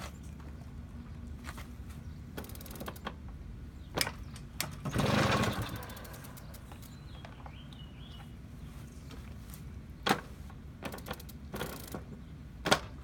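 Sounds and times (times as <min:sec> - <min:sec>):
small engine puttering: 0:04.6 - 0:07.6, 0:10.8 - 0:12.2.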